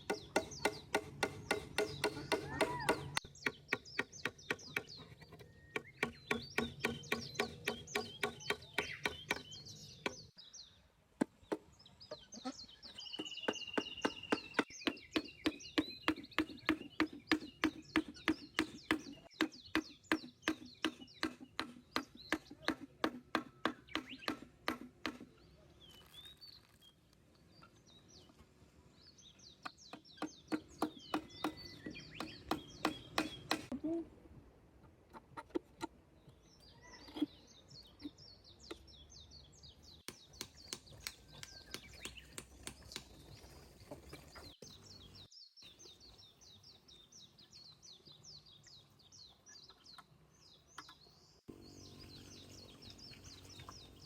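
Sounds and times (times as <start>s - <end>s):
birds chirping: 0.0s - 34.0s, 35.1s - 54.0s.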